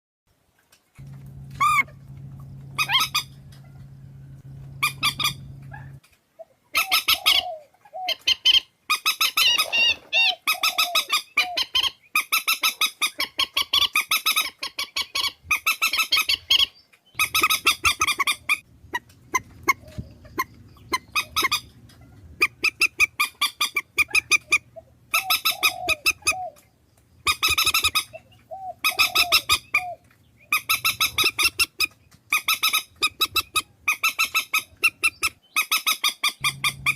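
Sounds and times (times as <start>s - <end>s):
low steady hum: 0.9s - 6.0s, 17.2s - 35.3s, 36.4s - 36.9s
bird nasal honking calls: 1.0s - 6.0s, 17.2s - 26.6s, 27.2s - 36.9s.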